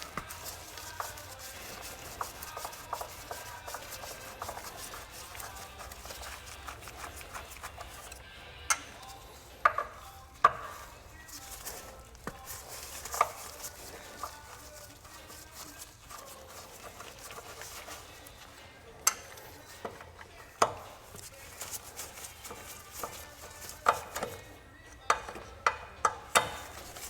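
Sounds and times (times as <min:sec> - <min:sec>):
rubbing and scraping: 0:00.0 - 0:27.0.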